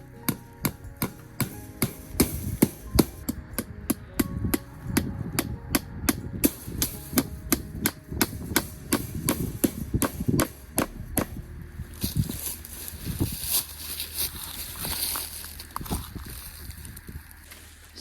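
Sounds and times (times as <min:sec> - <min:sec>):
hand hammering: 0:00.0 - 0:11.4.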